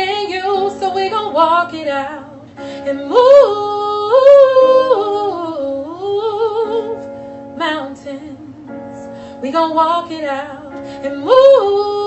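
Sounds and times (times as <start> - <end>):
soft instrumental accompaniment: 0.0 - 12.0
woman singing a slow ballad: 0.0 - 12.0.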